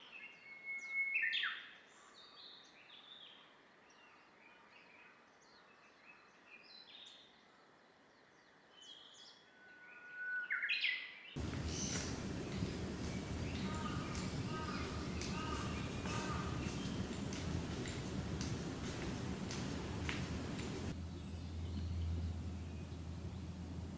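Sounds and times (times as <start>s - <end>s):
birds chirping and whistling: 0.1s - 1.6s, 9.9s - 23.5s
loud steady noise: 11.4s - 21.1s.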